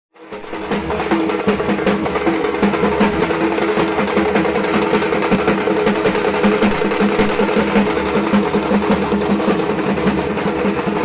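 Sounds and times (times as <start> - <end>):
barrel drum beaten with sticks: 0.2 - 11.0.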